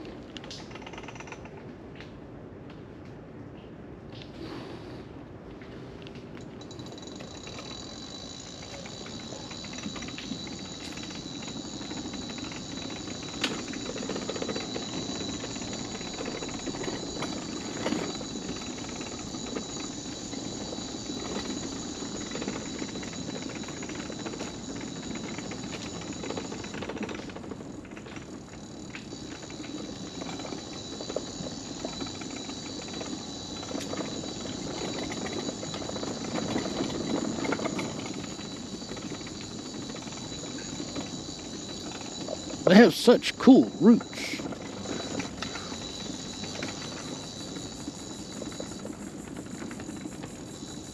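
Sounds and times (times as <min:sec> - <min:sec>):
wheels rumbling on wooden planks: 0:05.6 - 0:42.8, 0:43.7 - 0:50.9.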